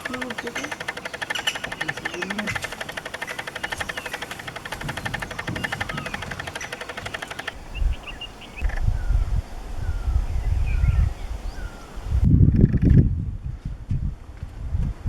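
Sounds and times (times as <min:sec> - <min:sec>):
rapid pulsing buzz: 0:00.0 - 0:08.6
small birds whistling and chirping: 0:00.0 - 0:09.2.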